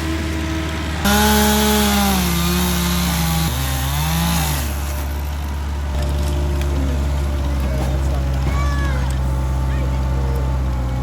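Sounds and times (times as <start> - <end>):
chainsaw cutting wood: 1.0 - 6.8.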